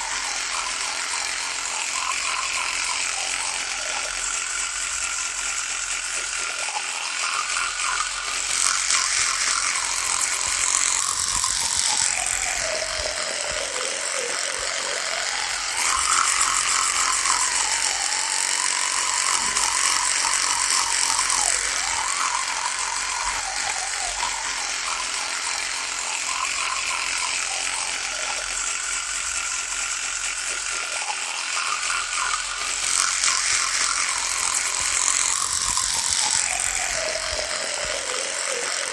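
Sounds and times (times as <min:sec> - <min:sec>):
electric toothbrush buzzing: 0:00.0 - 0:38.9.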